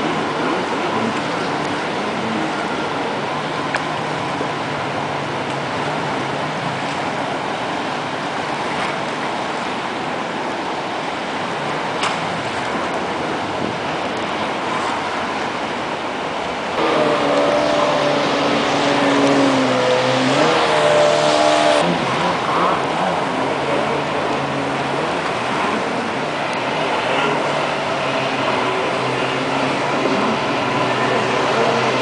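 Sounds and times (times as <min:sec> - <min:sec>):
jet ski engine revving: 0:00.0 - 0:07.2, 0:16.8 - 0:32.0
rush of noise: 0:00.0 - 0:32.0.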